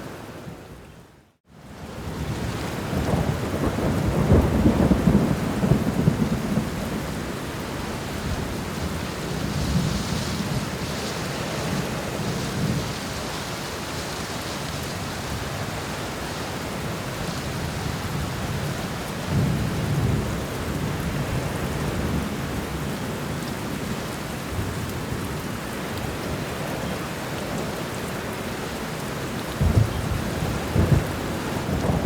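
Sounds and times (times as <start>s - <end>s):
steady rain falling: 0.0s - 32.0s
distant thunder rumbling: 2.2s - 7.4s, 29.5s - 32.0s.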